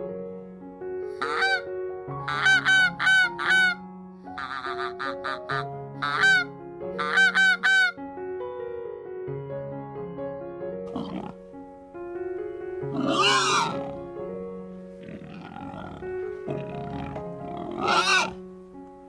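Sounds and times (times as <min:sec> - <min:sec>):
soft piano music: 0:00.0 - 0:19.0
goose honking: 0:01.2 - 0:01.6, 0:02.3 - 0:03.8, 0:04.4 - 0:07.9, 0:12.9 - 0:14.0, 0:15.0 - 0:18.4.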